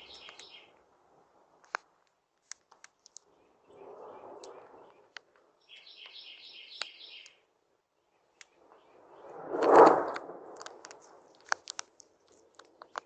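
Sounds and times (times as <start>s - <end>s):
sharp crackling clicks: 0.0s - 0.6s, 1.6s - 3.3s, 4.4s - 6.2s, 6.8s - 7.4s, 9.5s - 13.0s
bird chirping quickly: 0.0s - 0.7s, 3.4s - 7.4s.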